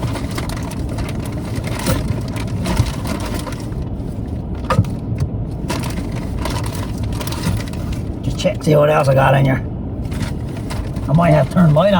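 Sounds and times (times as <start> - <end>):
steady low rumble: 0.0 - 11.9
knocks and clicks of handling: 4.6 - 7.9.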